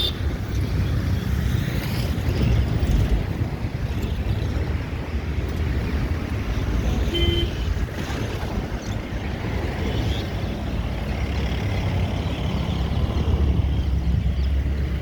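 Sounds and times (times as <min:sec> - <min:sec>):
road traffic noise: 0:00.0 - 0:15.0
wind rumbling on microphone: 0:00.0 - 0:15.0.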